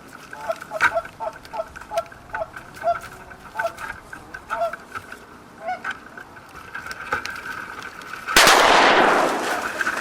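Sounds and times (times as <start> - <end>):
shotgun blast: 8.4 - 10.0.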